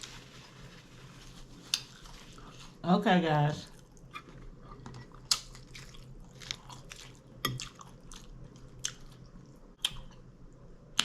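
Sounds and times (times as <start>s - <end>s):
person chewing crunchy food: 1.4s - 2.8s, 3.7s - 10.2s.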